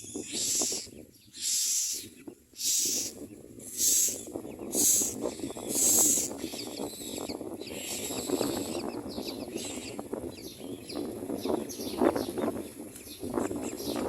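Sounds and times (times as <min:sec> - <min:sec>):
nestlings chirping: 0:00.0 - 0:14.0
nestlings hissing screeches: 0:00.2 - 0:03.1, 0:03.7 - 0:06.4.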